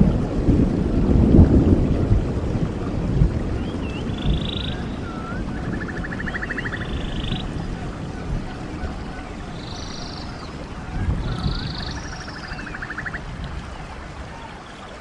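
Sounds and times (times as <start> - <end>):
stream water rushing: 0.0 - 15.0
birds singing: 3.5 - 15.0.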